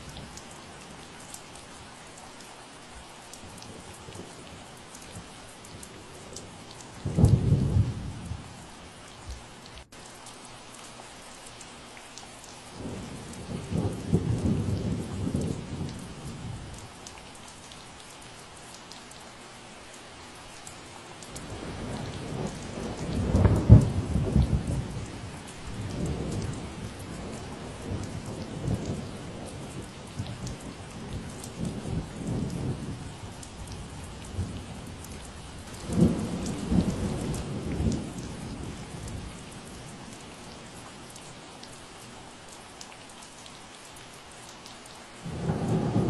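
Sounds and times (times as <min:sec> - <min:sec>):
steady rain: 0:00.0 - 0:46.0
thunder rumbling: 0:07.0 - 0:08.5, 0:12.8 - 0:16.6, 0:21.4 - 0:39.9, 0:45.2 - 0:46.0.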